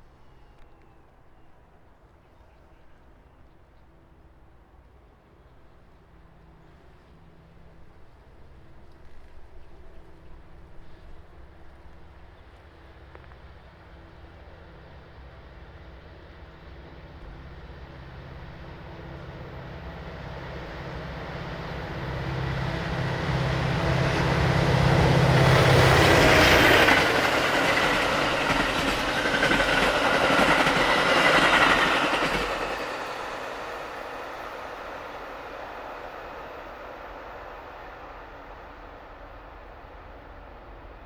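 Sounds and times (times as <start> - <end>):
diesel locomotive engine hum: 4.6 - 41.0
train wheels on rails: 10.8 - 41.0.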